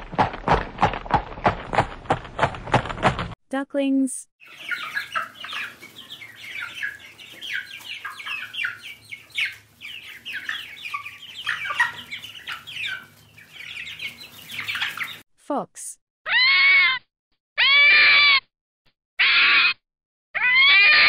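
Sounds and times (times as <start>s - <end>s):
ducklings peeping: 4.4s - 15.2s.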